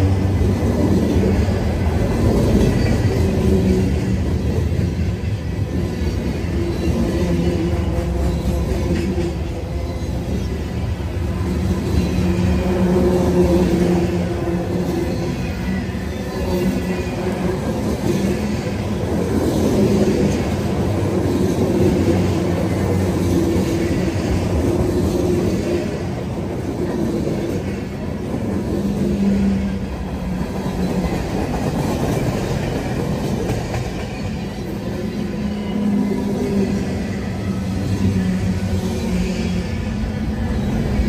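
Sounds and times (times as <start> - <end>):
freight train wheels on rails: 0.0 - 41.0.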